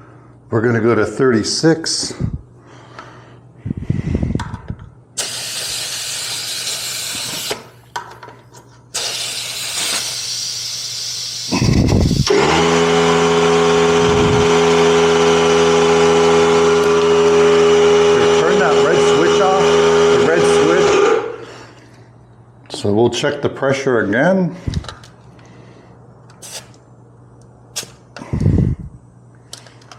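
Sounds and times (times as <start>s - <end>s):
air hissing: 5.2s - 7.8s, 9.0s - 12.3s, 26.4s - 26.8s
electric air pump motor running: 5.2s - 7.8s, 9.0s - 21.6s.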